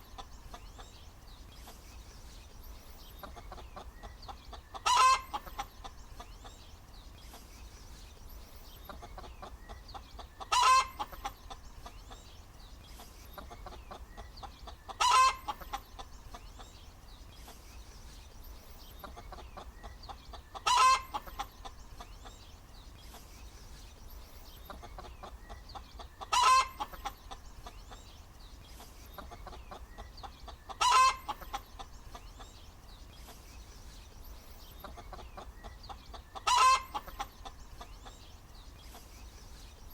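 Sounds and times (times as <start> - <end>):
hen cackling: 3.2 - 6.3, 9.0 - 11.6, 14.7 - 16.1, 19.1 - 22.1, 24.7 - 27.4, 30.5 - 31.8, 34.8 - 37.6.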